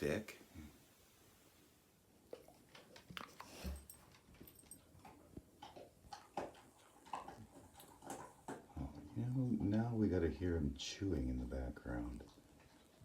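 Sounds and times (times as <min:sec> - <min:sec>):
dog chewing on wooden stick: 0:02.3 - 0:09.9.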